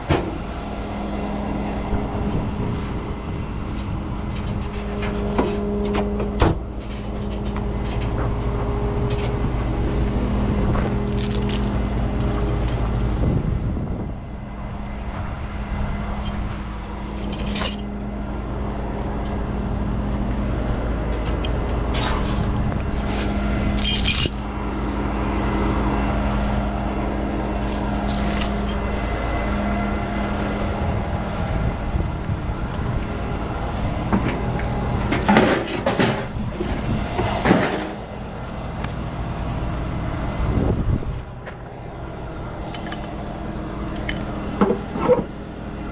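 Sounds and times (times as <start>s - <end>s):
truck engine running: 0.0s - 45.9s
metallic clanks and rattles: 10.7s - 13.0s, 16.2s - 18.1s, 21.1s - 24.5s, 27.6s - 28.8s, 34.1s - 38.0s.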